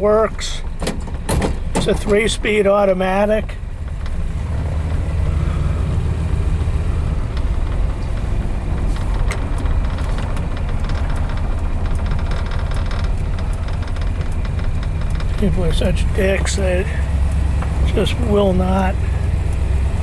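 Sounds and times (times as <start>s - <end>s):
car engine rumble: 0.0s - 20.0s
road noise: 0.0s - 20.0s.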